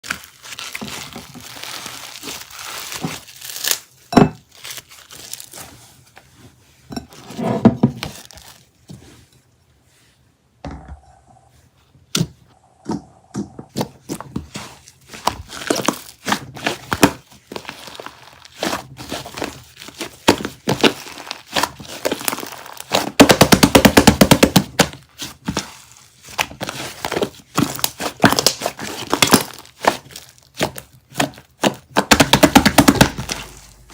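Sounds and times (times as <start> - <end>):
slime squished by hand: 0.0 - 3.9, 13.8 - 33.9.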